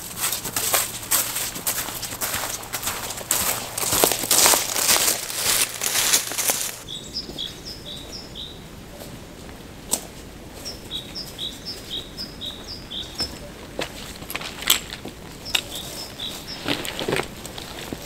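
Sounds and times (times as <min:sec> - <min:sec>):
loud rustling: 0:00.0 - 0:06.8.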